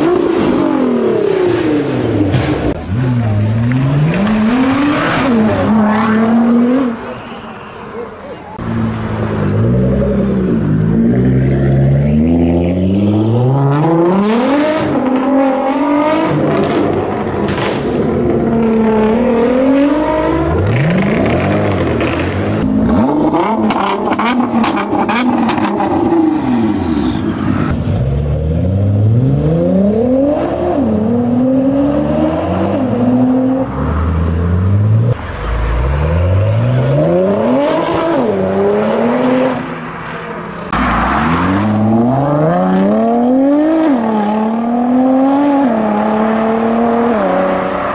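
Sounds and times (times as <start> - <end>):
car engine revving hard: 35.0 - 39.8, 40.7 - 47.9.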